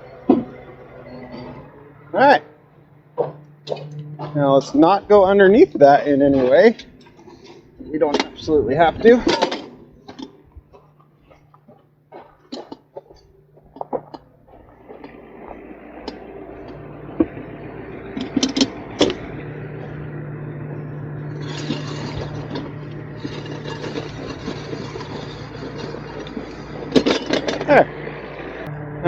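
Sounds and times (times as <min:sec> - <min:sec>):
steady low hum: 0:00.0 - 0:29.0
truck engine and hydraulic lift: 0:00.0 - 0:29.0
scattered clicks and knocks: 0:09.2 - 0:17.4, 0:18.1 - 0:19.3, 0:21.4 - 0:27.9.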